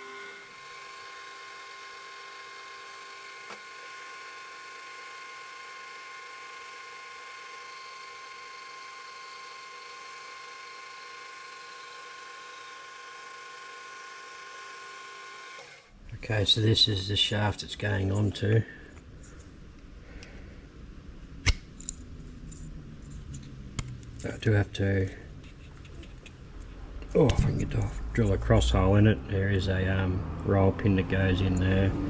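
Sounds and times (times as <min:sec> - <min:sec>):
metal lathe whining: 0:00.0 - 0:16.0.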